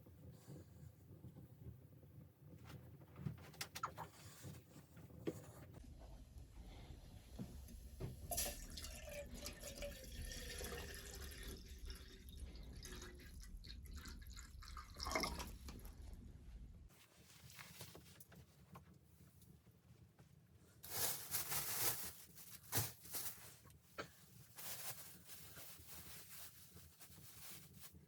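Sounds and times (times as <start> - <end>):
faint dripping liquid: 8.3 - 16.0.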